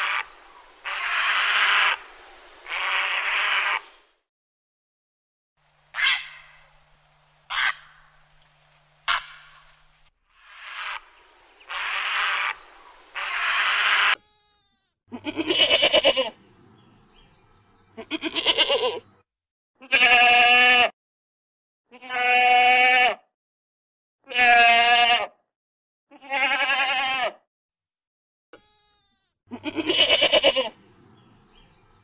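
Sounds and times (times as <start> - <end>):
goat bleating: 0.0 - 2.0, 2.7 - 3.8, 10.4 - 11.1, 11.7 - 12.6, 13.2 - 16.4, 17.9 - 19.2, 19.8 - 20.9, 21.9 - 23.2, 24.2 - 25.4, 26.1 - 27.4, 28.6 - 30.8.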